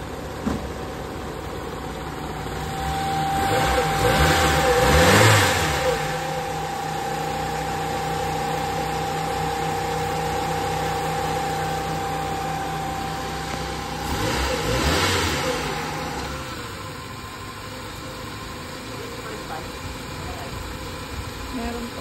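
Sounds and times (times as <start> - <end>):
car engine idling and revving: 0.0 - 22.0
steady whine: 0.0 - 22.0.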